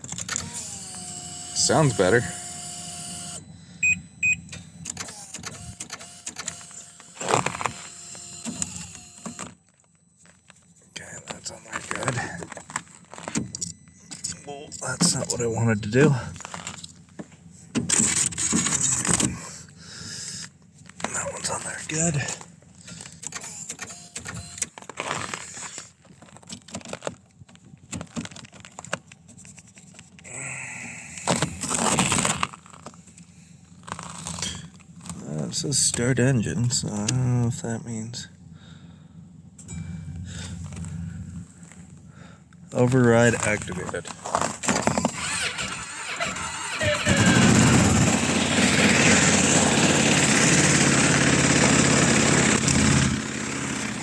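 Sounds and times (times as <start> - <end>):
short electronic beeps: 1.4 - 7.3.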